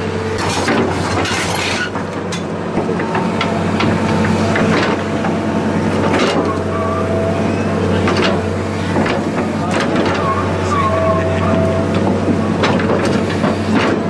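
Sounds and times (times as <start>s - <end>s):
heavy engine running: 0.0s - 14.0s
knocks and clatters: 0.4s - 6.6s, 8.0s - 10.2s, 11.9s - 14.0s.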